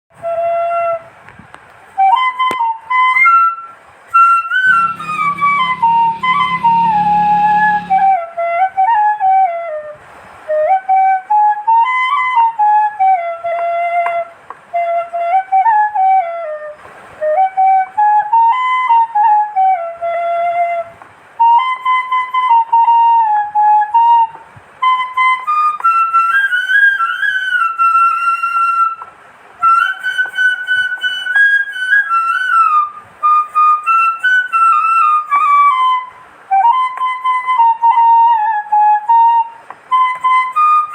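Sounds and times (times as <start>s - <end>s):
solo flute melody: 1.9s - 40.9s
low hum: 4.6s - 8.2s.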